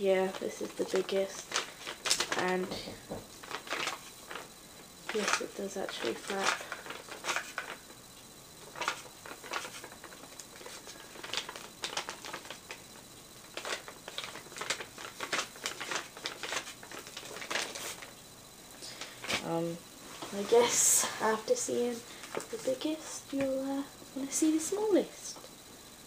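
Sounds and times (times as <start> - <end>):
paper rustling and crinkling: 0.1 - 4.5, 5.1 - 7.9, 8.6 - 12.8, 13.5 - 18.1, 19.0 - 19.4, 21.8 - 22.8.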